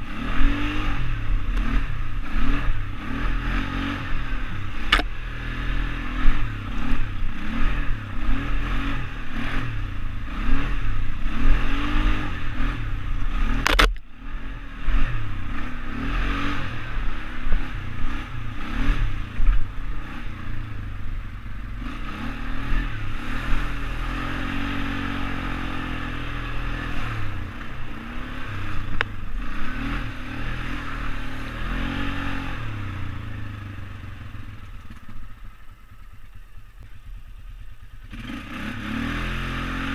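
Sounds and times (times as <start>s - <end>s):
atv engine revving: 0.0s - 39.9s
sharp click: 4.9s - 5.1s, 13.6s - 14.1s.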